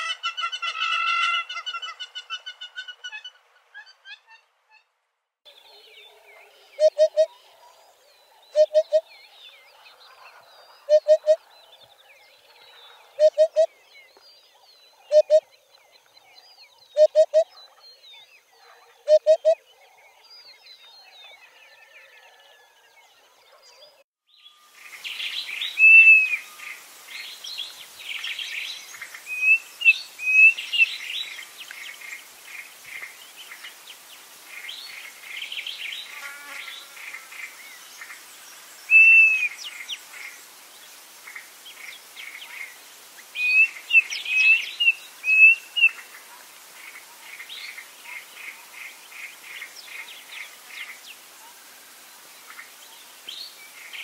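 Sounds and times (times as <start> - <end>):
birds calling in chorus: 5.5 - 24.0, 34.5 - 40.4, 41.2 - 51.1.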